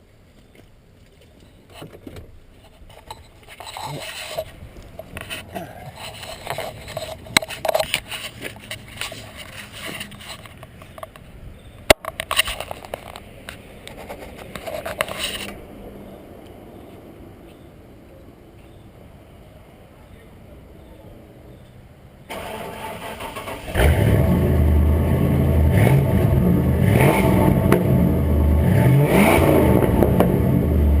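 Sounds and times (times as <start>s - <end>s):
scraping and rustling: 1.2s - 11.3s, 12.0s - 15.6s.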